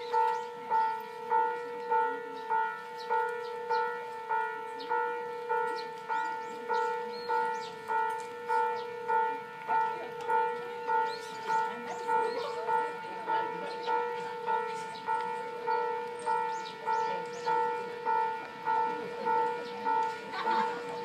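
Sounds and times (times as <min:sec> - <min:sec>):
level crossing warning bell: 0:00.0 - 0:21.0.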